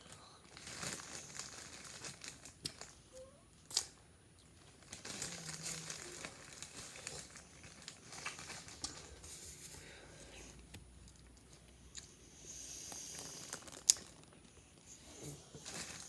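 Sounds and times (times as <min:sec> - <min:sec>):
chocolate wrapper crinkling: 0:00.4 - 0:03.0, 0:03.7 - 0:09.2, 0:12.9 - 0:14.6.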